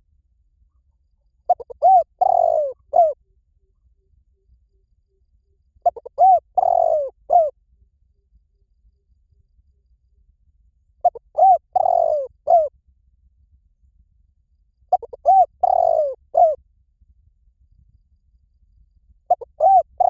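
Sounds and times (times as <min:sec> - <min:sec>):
dove cooing: 0:01.5 - 0:03.2, 0:05.8 - 0:07.5, 0:11.0 - 0:12.7, 0:14.9 - 0:16.6, 0:19.3 - 0:20.0.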